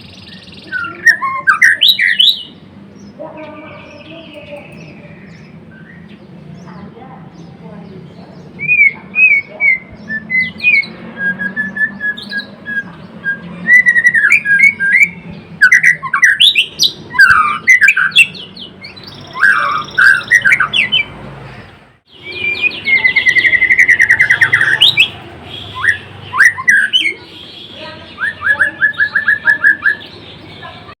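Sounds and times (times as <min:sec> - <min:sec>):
songbird whistling and trilling: 0:00.0 - 0:02.6, 0:04.0 - 0:06.2, 0:08.5 - 0:21.1, 0:22.1 - 0:27.2, 0:28.1 - 0:30.2.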